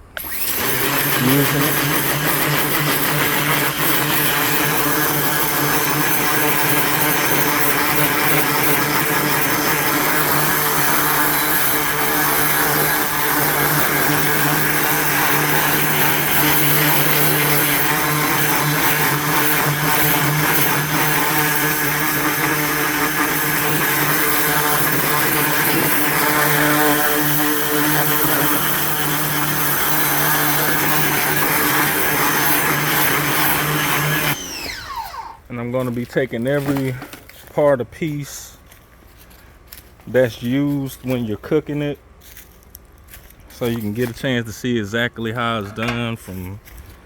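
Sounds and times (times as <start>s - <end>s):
pressure washer motor hum: 0.0s - 37.3s.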